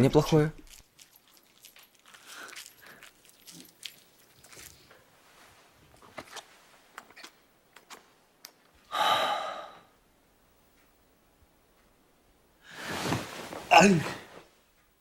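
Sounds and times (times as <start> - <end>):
person sighing loudly: 8.9 - 9.9
faint rustling: 12.6 - 14.7.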